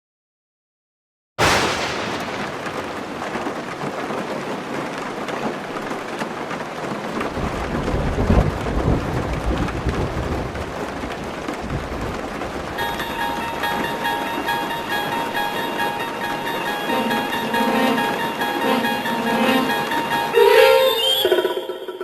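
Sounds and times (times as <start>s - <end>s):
thunder rumbling: 1.4s - 5.9s, 7.0s - 16.2s
steady rain: 1.4s - 20.4s.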